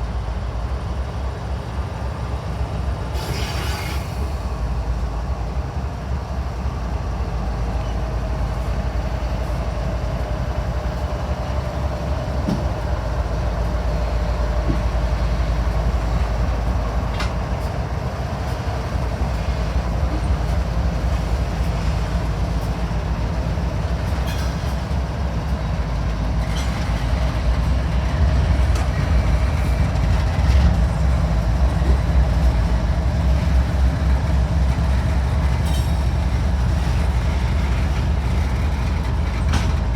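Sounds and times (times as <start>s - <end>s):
freight train rumbling on track: 0.0s - 39.9s.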